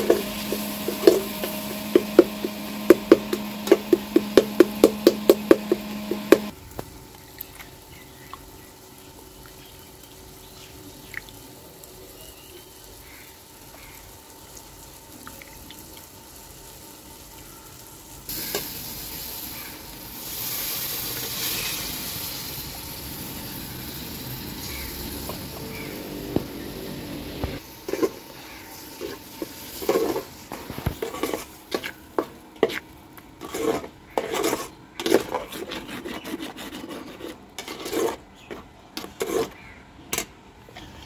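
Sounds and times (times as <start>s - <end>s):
frying sizzle: 0.0s - 33.9s.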